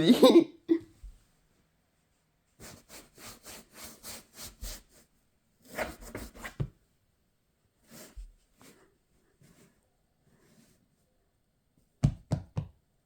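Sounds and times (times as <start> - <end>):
rubbing scratching strokes: 2.6 - 6.6.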